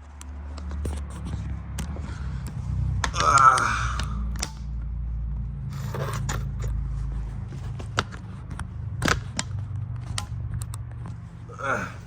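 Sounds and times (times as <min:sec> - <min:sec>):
hand tools clicking and knocking: 0:00.6 - 0:04.9, 0:07.4 - 0:12.0.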